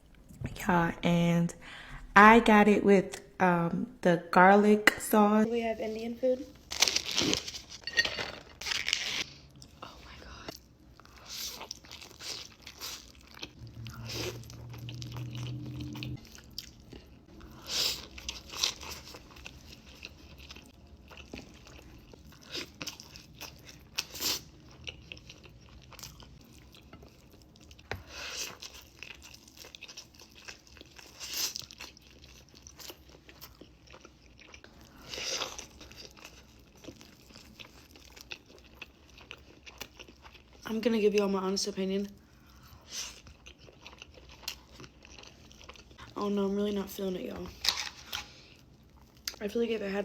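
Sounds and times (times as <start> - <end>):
low steady hum: 0.0 - 6.7, 9.4 - 27.9
crisp crunch: 6.6 - 9.4.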